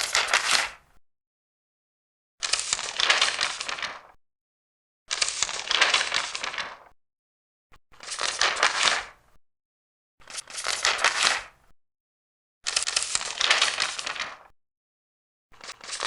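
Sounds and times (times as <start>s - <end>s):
paper pages turning: 0.0s - 0.8s, 2.4s - 4.2s, 5.1s - 6.9s, 8.0s - 9.2s, 10.2s - 11.5s, 12.7s - 14.5s, 15.6s - 16.0s.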